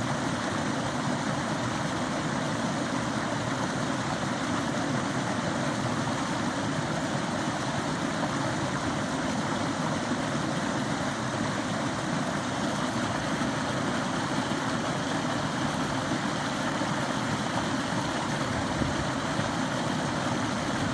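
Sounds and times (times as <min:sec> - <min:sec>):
forest stream flowing: 0:00.0 - 0:20.9.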